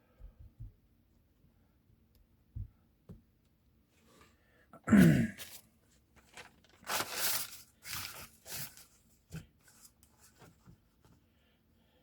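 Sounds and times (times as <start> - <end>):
newspaper tearing: 6.2 - 9.0.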